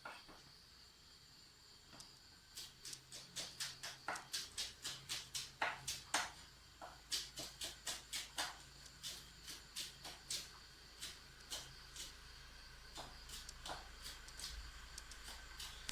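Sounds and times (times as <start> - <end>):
cooking utensil strokes: 2.5 - 12.3.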